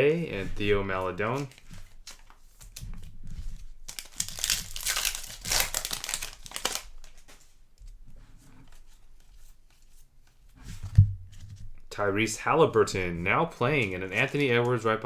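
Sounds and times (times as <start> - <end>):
cards rustling: 0.3 - 7.6, 12.3 - 15.0
plastic wrapper crinkling and tearing: 0.7 - 7.6.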